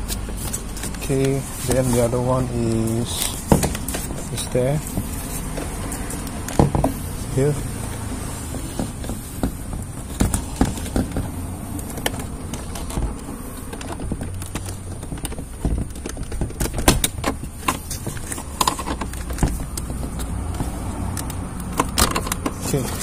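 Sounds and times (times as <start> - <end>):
plastic connectors clicking: 9.8 - 23.0.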